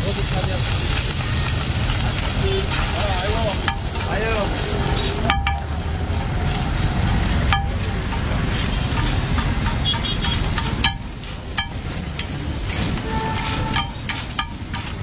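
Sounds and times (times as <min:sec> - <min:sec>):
road traffic rumble: 0:00.0 - 0:15.0
spatula clacking on griddle: 0:00.7 - 0:15.0.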